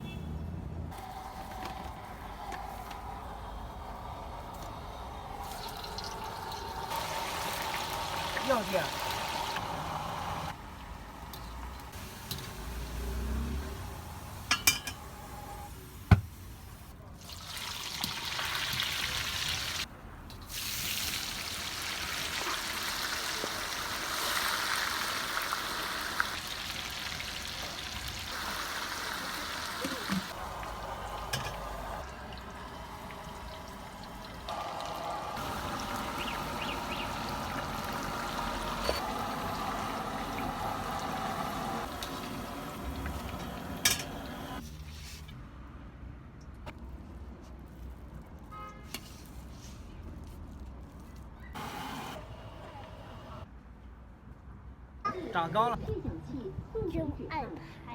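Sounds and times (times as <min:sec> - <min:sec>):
food sizzling in frying: 0:01.0 - 0:44.6.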